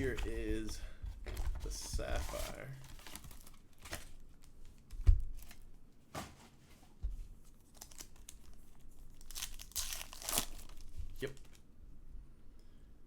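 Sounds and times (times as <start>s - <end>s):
packaging tearing and crinkling: 1.4s - 4.2s, 7.6s - 11.6s.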